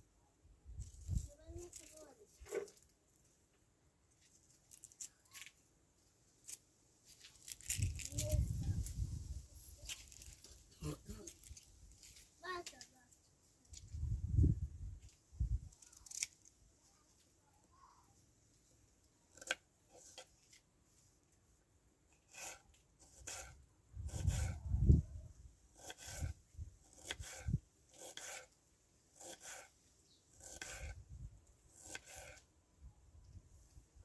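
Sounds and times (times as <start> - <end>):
rubbing or scraping strokes: 22.3 - 25.0, 25.8 - 32.5.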